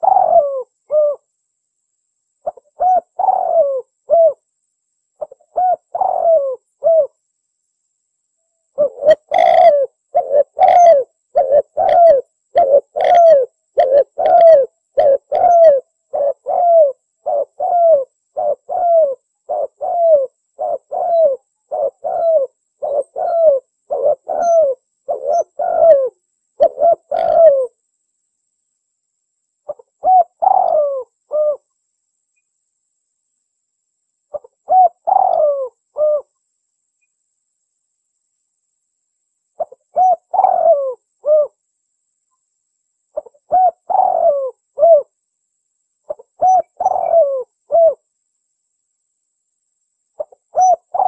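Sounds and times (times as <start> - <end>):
dove cooing: 0.0 - 1.3, 2.4 - 4.4, 5.2 - 7.2, 8.8 - 27.8, 29.7 - 31.7, 34.3 - 36.3, 39.6 - 41.6, 43.2 - 45.1, 46.1 - 48.0, 50.2 - 51.0.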